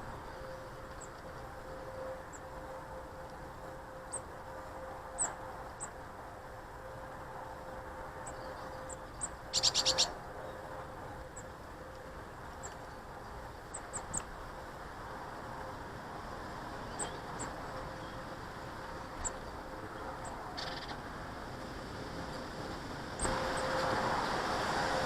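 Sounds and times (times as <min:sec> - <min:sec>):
harsh pulsing bird call: 0:08.2 - 0:10.7
high bird chirps: 0:08.3 - 0:10.1.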